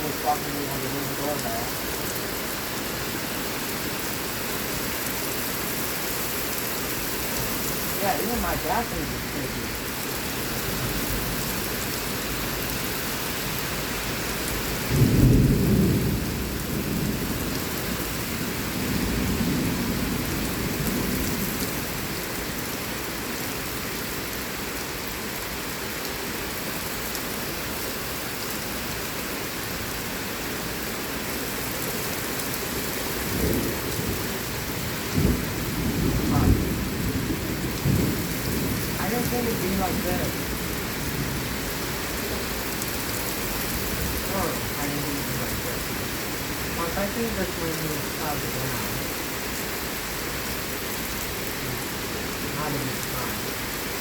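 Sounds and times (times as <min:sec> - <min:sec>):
heavy rain falling: 0:00.0 - 0:54.0
thunder: 0:14.8 - 0:21.4, 0:35.0 - 0:39.0.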